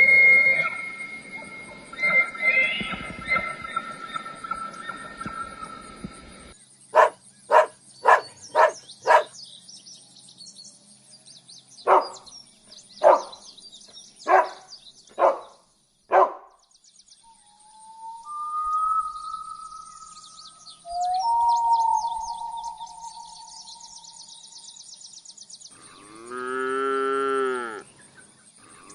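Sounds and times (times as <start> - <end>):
small birds chirping: 0.0 - 26.5
dog barking: 7.0 - 9.4, 11.9 - 12.2, 13.0 - 13.3, 14.3 - 15.5, 16.1 - 16.5.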